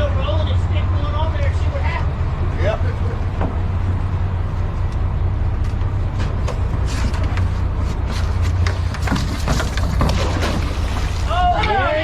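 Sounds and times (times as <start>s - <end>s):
boat motor rumbling: 0.0s - 12.0s.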